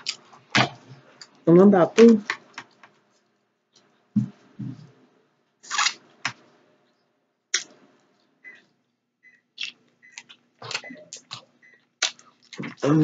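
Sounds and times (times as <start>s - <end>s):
soft thuds: 4.2s - 4.9s.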